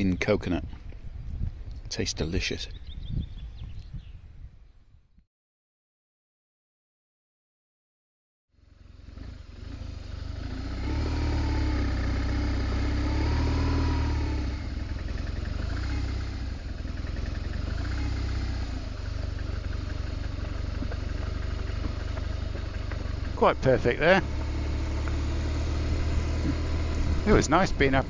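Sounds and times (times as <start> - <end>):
motorcycle engine running: 8.6 - 28.0.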